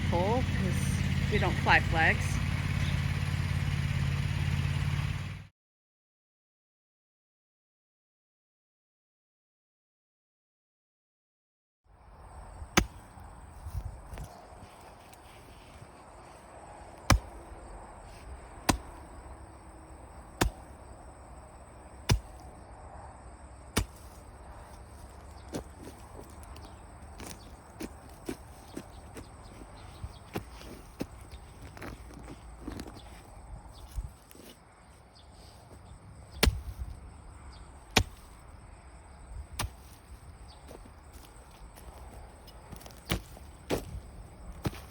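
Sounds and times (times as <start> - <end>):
low steady rumble: 0.0 - 5.4
tool striking ground: 12.5 - 22.7, 23.6 - 44.9.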